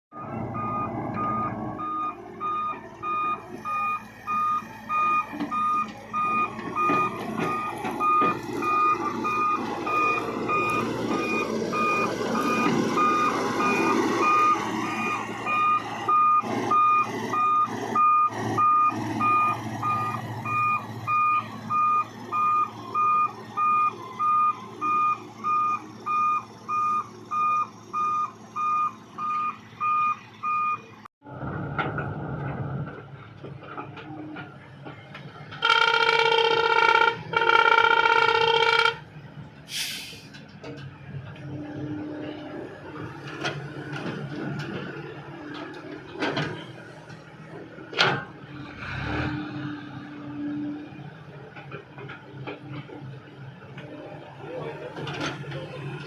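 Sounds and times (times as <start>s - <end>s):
diesel engine and hydraulics: 0.1s - 56.0s
excavator travel alarm beeping: 0.2s - 31.0s, 35.6s - 39.1s.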